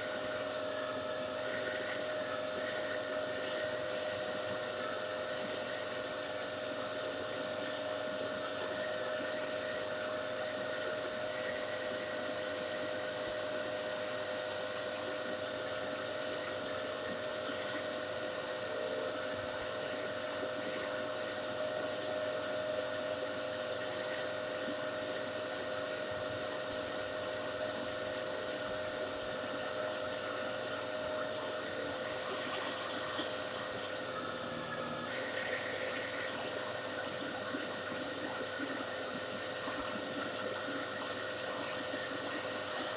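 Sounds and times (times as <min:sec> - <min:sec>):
vacuum cleaner running: 0:27.8 - 0:42.9.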